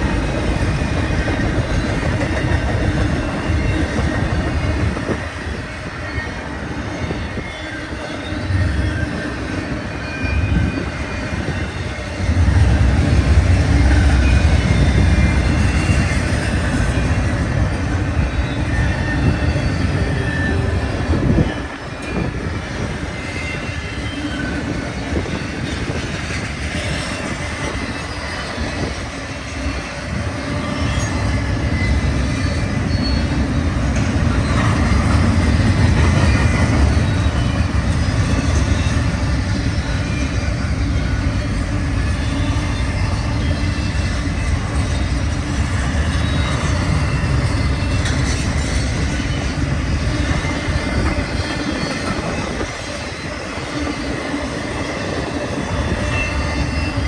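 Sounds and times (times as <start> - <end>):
train wheels rumbling on rail: 0.0 - 57.0
faint wheel squeal: 18.2 - 25.4, 30.4 - 33.5.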